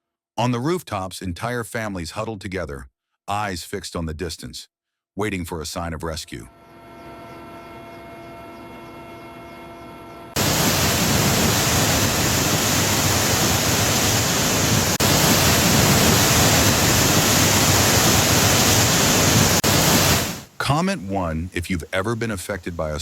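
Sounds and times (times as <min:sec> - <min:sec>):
rushing water: 0:10.4 - 0:23.0.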